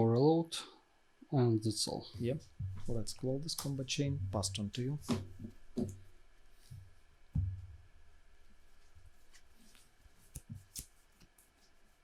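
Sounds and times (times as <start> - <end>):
low thump: 7.4 - 7.8.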